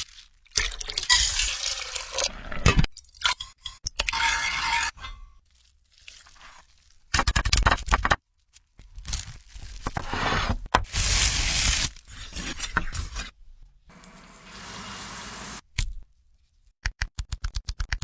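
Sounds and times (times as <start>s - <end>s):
food sizzling: 10.9s - 11.9s, 13.9s - 15.6s
steady hiss: 13.9s - 15.6s.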